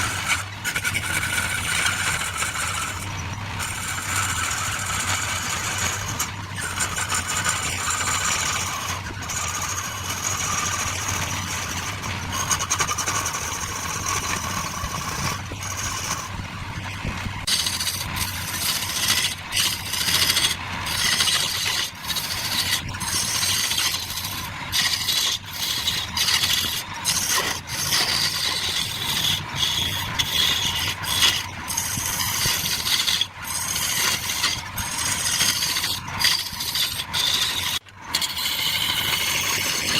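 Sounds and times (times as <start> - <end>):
tool scraping wood with clicks: 0.0 - 16.4, 17.4 - 39.9
power tool humming: 17.4 - 39.9.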